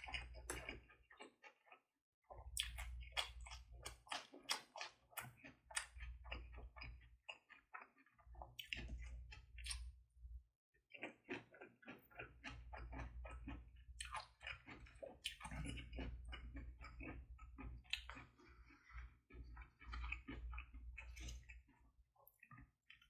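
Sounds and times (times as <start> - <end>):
wet chewing mouth smacks: 11.0 - 16.0.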